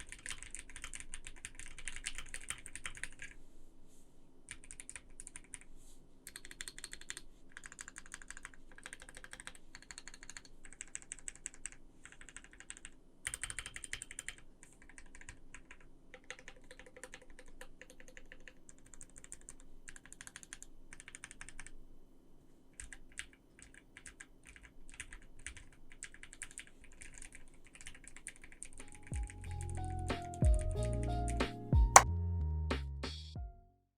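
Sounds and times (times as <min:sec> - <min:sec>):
mechanical keyboard typing: 0:00.0 - 0:03.4, 0:04.5 - 0:05.6, 0:06.3 - 0:21.8, 0:22.8 - 0:31.4
music: 0:28.8 - 0:33.9.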